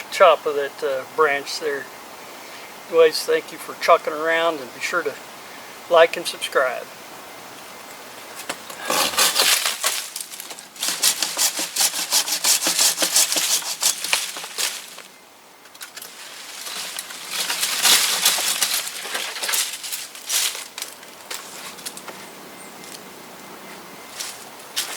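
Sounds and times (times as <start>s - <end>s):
saw cutting through wood: 8.8s - 15.0s.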